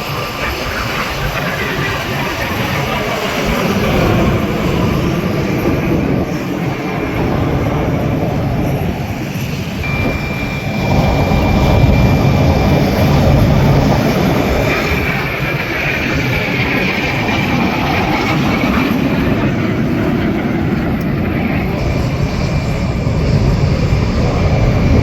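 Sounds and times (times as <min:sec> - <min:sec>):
high whine: 0:00.0 - 0:25.0
jet engine noise: 0:00.0 - 0:25.0.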